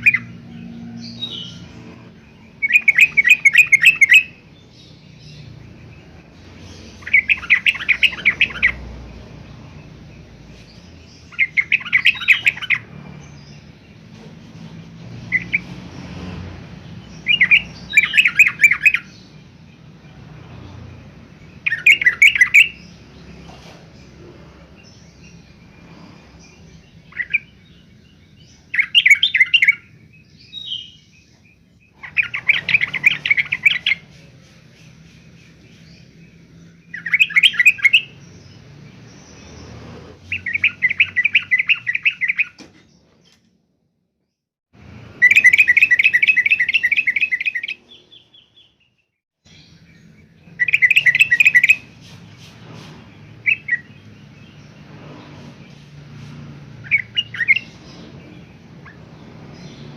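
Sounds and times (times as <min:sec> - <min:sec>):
bird chattering: 0:02.4 - 0:08.9, 0:10.8 - 0:13.6, 0:17.2 - 0:19.3, 0:21.6 - 0:23.0, 0:32.0 - 0:36.1.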